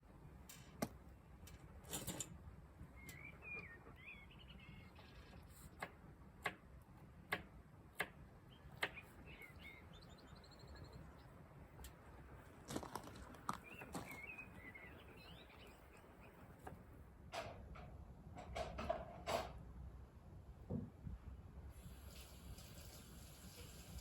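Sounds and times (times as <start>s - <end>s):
small bird chirping: 2.9s - 5.8s, 8.5s - 11.4s, 13.5s - 16.4s.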